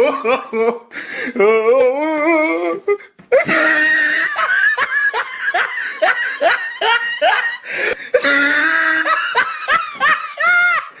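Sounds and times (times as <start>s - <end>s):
high-pitched laughter: 3.4s - 7.6s.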